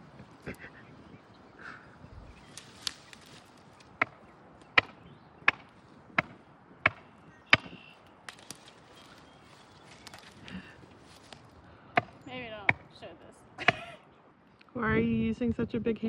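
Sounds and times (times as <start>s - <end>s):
hammer blows ringing: 4.8s - 7.9s.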